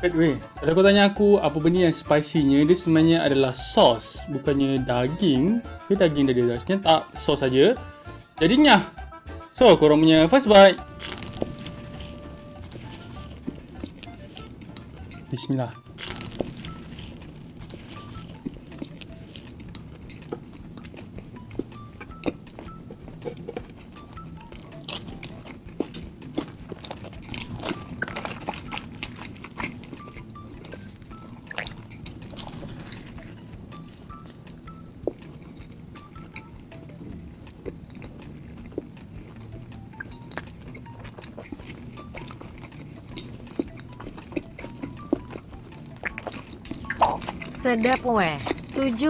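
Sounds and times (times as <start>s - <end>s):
chewing and biting burger: 10.8s - 49.0s.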